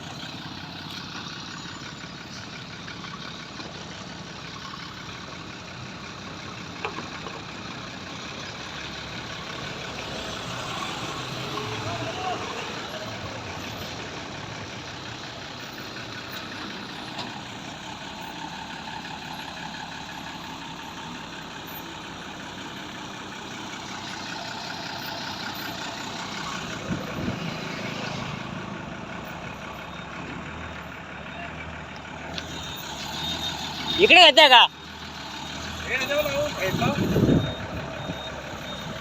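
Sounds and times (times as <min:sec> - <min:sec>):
heavy truck engine idling: 0:00.0 - 0:39.0.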